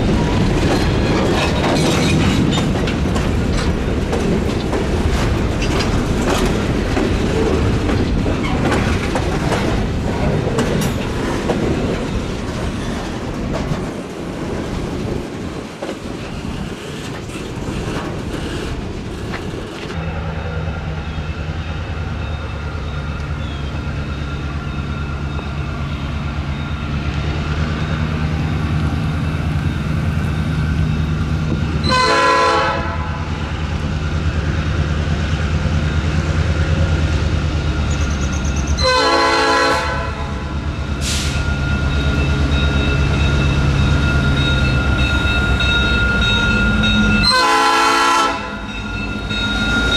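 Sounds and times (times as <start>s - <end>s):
diesel locomotive drone: 0.0s - 49.9s
freight train clattering past: 0.0s - 49.9s
train horn blast: 31.8s - 33.5s, 38.8s - 41.5s, 47.2s - 48.8s.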